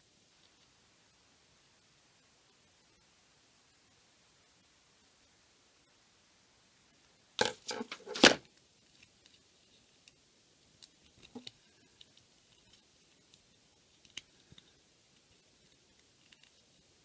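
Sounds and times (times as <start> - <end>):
small clicks and rustles: 0.3 - 0.8, 7.4 - 17.0.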